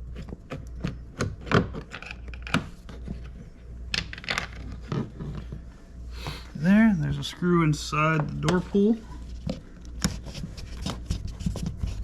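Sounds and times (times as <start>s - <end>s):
rubbing against plastic: 9.2s - 12.0s.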